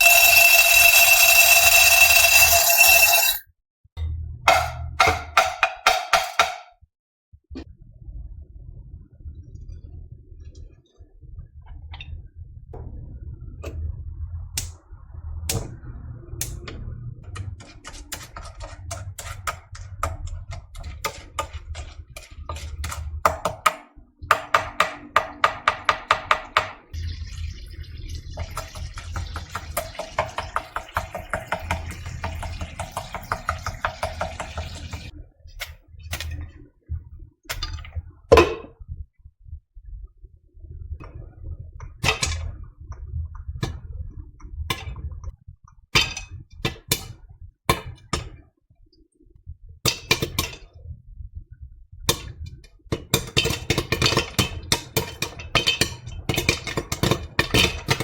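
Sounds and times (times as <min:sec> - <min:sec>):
popcorn kernels popping: 0:00.0 - 0:03.4.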